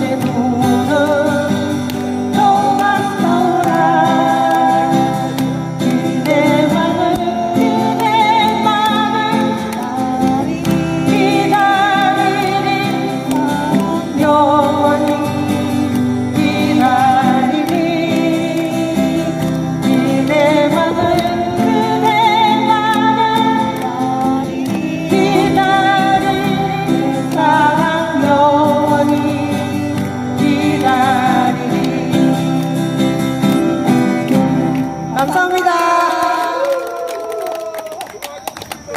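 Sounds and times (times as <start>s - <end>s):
person singing: 0.0s - 33.2s, 35.1s - 37.5s
strummed acoustic guitar: 0.0s - 35.6s.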